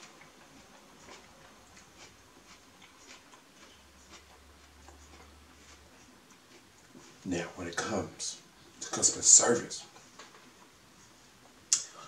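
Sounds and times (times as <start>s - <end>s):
mouth chewing wet clicks: 0.0s - 7.2s.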